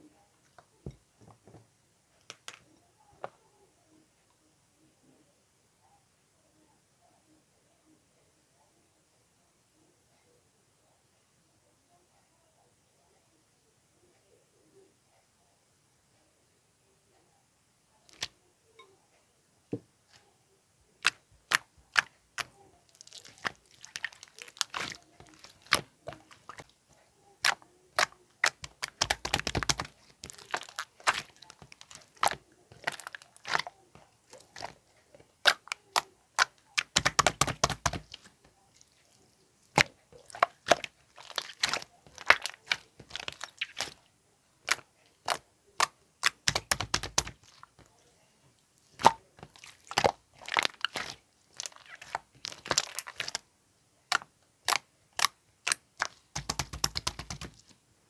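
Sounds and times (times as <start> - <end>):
slime squishing: 21.0 - 26.8, 27.4 - 44.0, 44.6 - 47.9, 48.8 - 53.4, 54.1 - 57.7.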